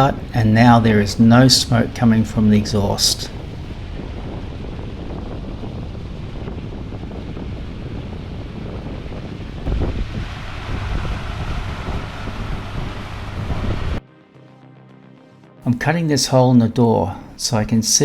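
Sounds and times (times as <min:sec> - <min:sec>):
wind buffeting microphone: 0:00.0 - 0:14.0
marine diesel engine at full throttle: 0:04.8 - 0:14.0.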